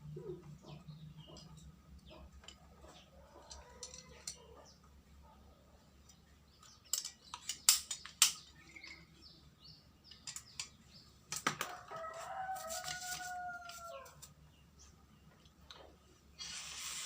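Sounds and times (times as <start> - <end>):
rooster crowing: 11.7 - 14.2.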